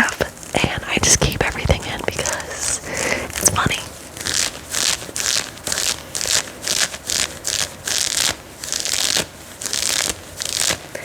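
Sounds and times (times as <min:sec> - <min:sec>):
cloth being scratched: 0:00.0 - 0:11.0.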